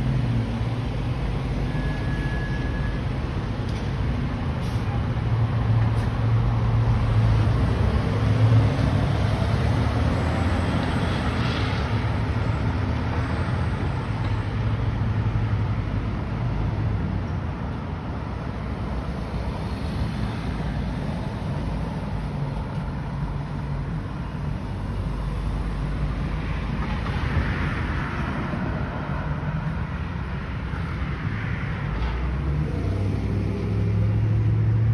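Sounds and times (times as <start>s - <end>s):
emergency vehicle engine rumbling: 0.0s - 14.1s
traffic noise: 0.0s - 34.9s.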